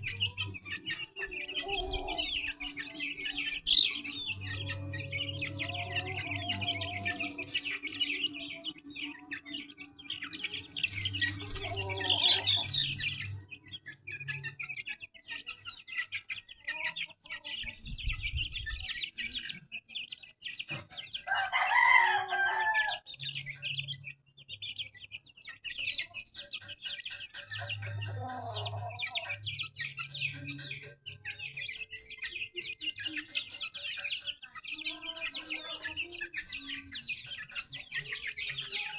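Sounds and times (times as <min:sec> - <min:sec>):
chicks peeping and clucking: 0:00.0 - 0:38.9
rooster crowing: 0:21.3 - 0:23.1.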